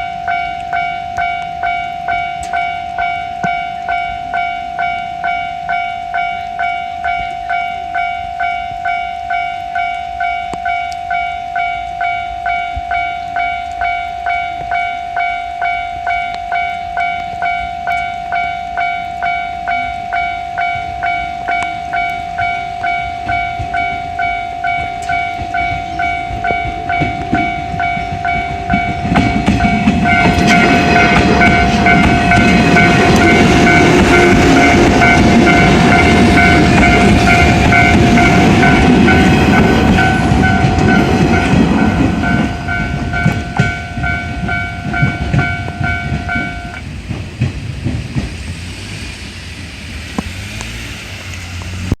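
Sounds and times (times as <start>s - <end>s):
level-crossing warning bell ringing: 0.0s - 47.6s
electric train passing: 0.0s - 52.0s.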